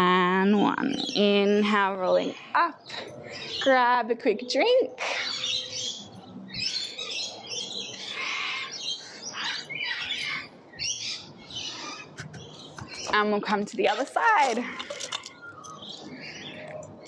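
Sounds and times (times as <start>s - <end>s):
birds squawking: 5.0s - 16.8s.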